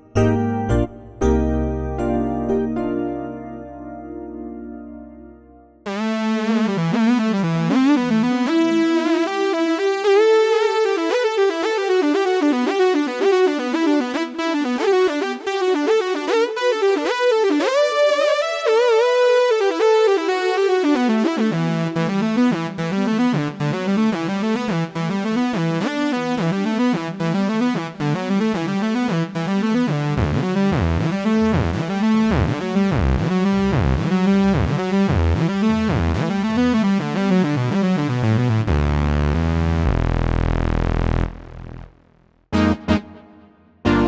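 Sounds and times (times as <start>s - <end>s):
synthesizer rhythmic pattern: 5.9s - 18.9s, 19.6s - 40.0s, 42.6s - 44.0s
pulsing synth bass line: 29.4s - 41.9s, 42.6s - 43.2s.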